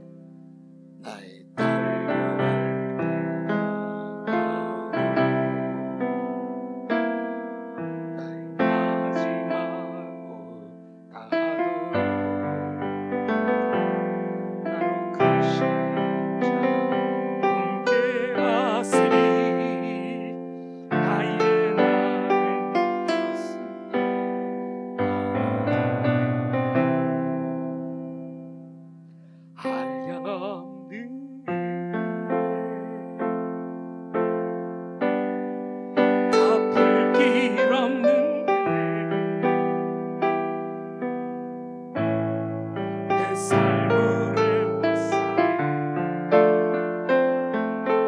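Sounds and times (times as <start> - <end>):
electric piano slow chords: 0.0 - 48.0.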